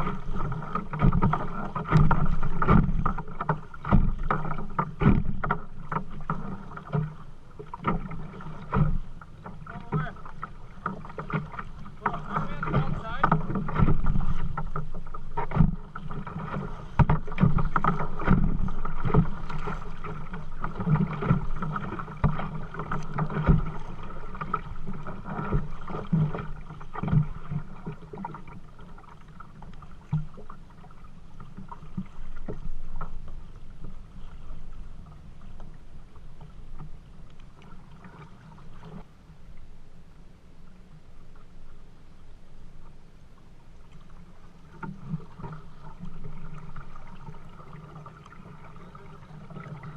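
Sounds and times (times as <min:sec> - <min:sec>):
paddle knocks: 0:00.0 - 0:29.3
paddle strokes splashing: 0:00.0 - 0:39.9, 0:40.6 - 0:49.9.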